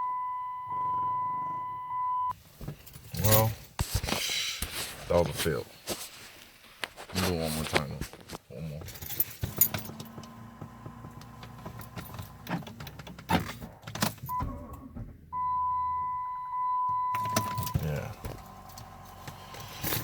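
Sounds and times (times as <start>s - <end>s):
starter motor whine: 9.7s - 12.6s.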